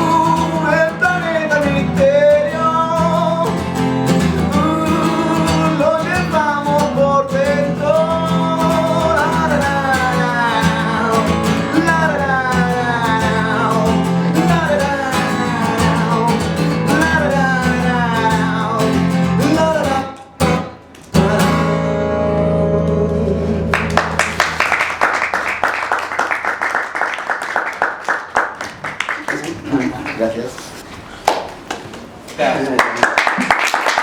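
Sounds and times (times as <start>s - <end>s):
wordless sung melody: 0.0s - 25.7s
acoustic guitar strumming: 0.0s - 26.5s
applause: 23.7s - 30.4s, 31.2s - 31.9s, 32.5s - 34.0s.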